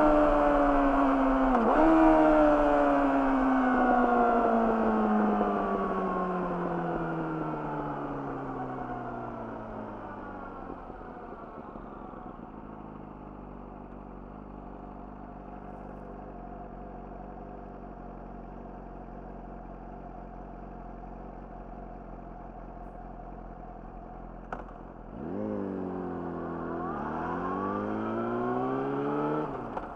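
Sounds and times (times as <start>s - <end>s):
motorcycle engine idling: 10.5s - 25.1s.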